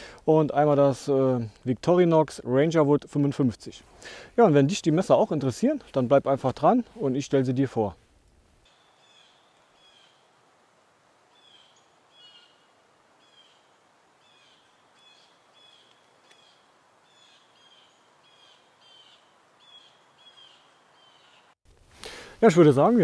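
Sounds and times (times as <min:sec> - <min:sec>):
woodland ambience hiss: 0:00.0 - 0:23.0
faint bird chirps: 0:08.7 - 0:10.3, 0:11.3 - 0:21.6.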